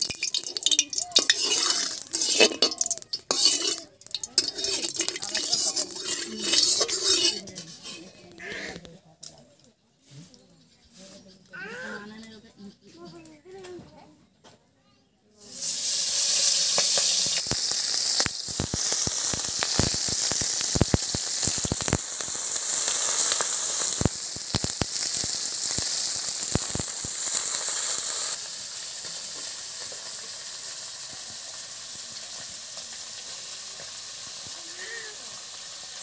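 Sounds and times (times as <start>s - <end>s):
oil popping: 0.0s - 8.1s, 15.7s - 34.8s
food sizzling in a wok: 0.0s - 8.3s, 15.4s - 36.0s.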